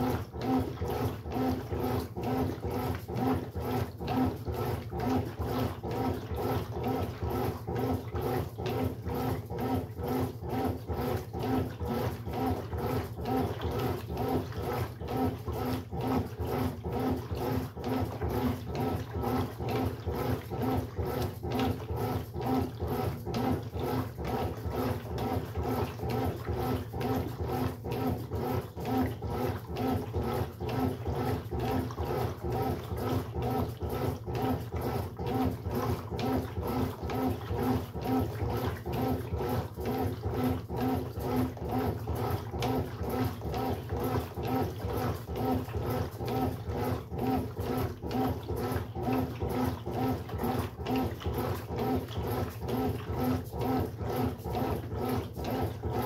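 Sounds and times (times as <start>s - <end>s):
washing machine churning: 0.0s - 56.0s.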